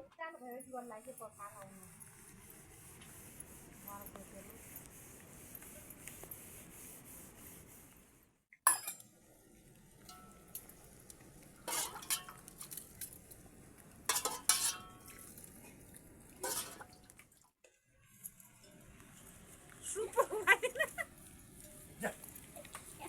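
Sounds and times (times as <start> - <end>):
metal dishes clinking: 8.7 - 9.0, 11.7 - 12.8, 14.1 - 15.3, 16.4 - 17.0.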